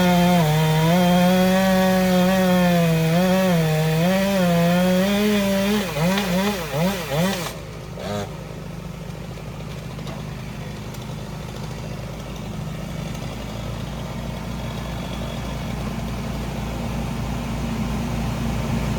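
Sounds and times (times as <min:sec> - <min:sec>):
chainsaw revving: 0:00.0 - 0:08.4
low engine idle: 0:07.7 - 0:18.9.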